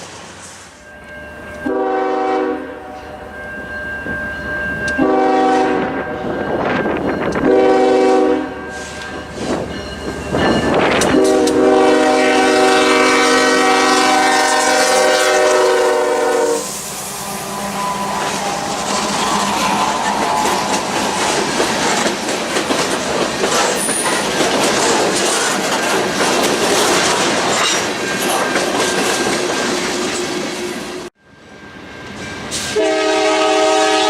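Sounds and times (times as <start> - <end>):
passing train rumble and clatter: 0.0 - 34.0
locomotive air horn blasts: 1.6 - 3.2, 5.0 - 6.3, 7.4 - 9.2, 11.1 - 19.4, 32.7 - 34.0.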